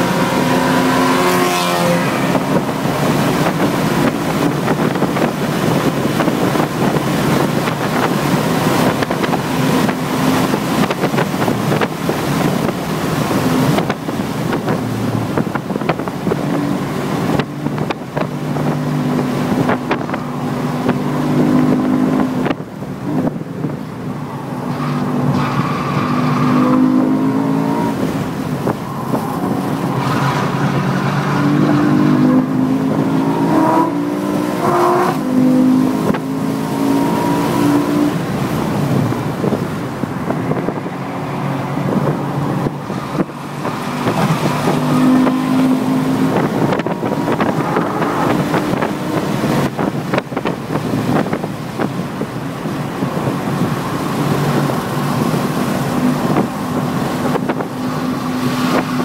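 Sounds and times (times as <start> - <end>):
car engine accelerating: 0.0 - 59.0
wind and road noise: 0.0 - 59.0.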